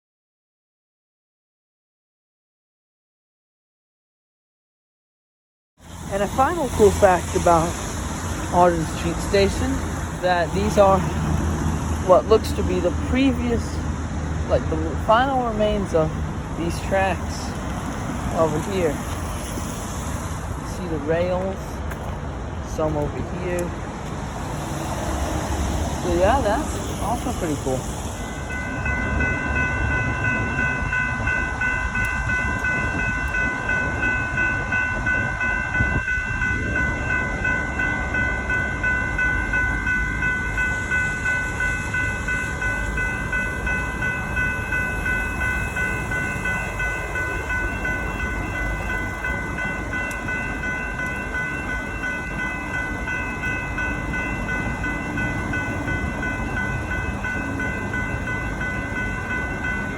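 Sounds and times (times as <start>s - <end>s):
level crossing bells ringing: 6.1s - 7.8s, 8.5s - 11.2s, 14.5s - 19.5s, 26.0s - 59.9s.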